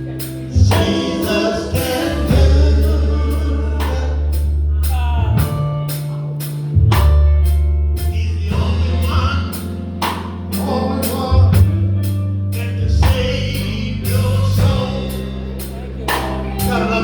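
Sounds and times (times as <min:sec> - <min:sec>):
person singing: 0:00.0 - 0:06.0, 0:10.5 - 0:12.0, 0:12.6 - 0:17.0
drum kit beat: 0:00.0 - 0:17.0
live gospel band playing: 0:00.0 - 0:17.0.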